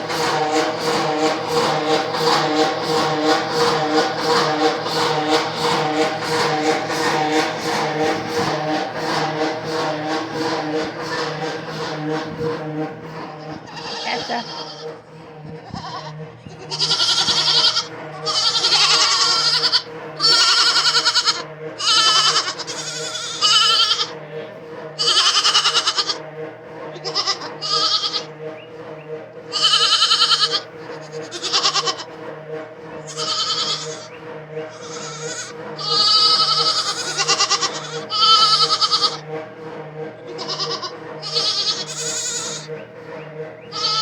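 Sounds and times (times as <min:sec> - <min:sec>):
steady low hum: 0:00.0 - 0:44.0
goats bleating: 0:13.5 - 0:24.2, 0:25.0 - 0:26.2, 0:26.9 - 0:28.3, 0:29.5 - 0:32.2, 0:33.0 - 0:34.1, 0:34.7 - 0:39.2, 0:40.3 - 0:42.7, 0:43.7 - 0:44.0.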